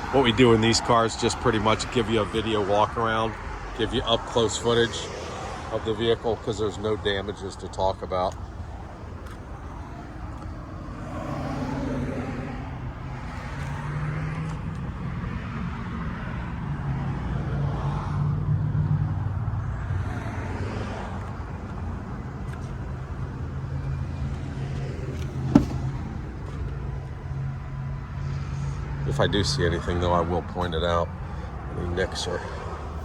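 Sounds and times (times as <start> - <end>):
cars passing: 0.0 - 33.0
low traffic hum: 0.0 - 33.0
short knock: 25.5 - 26.0.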